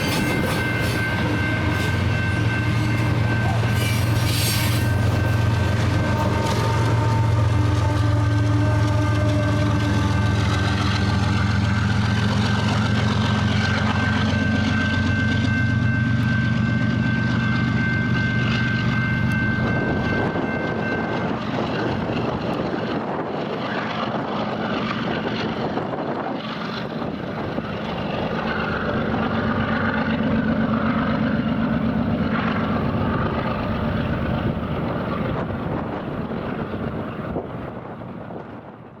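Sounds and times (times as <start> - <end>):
high squeal tones: 0.0 - 7.6
train wheels rumbling on rail: 0.0 - 39.0
wind noise: 16.4 - 39.0.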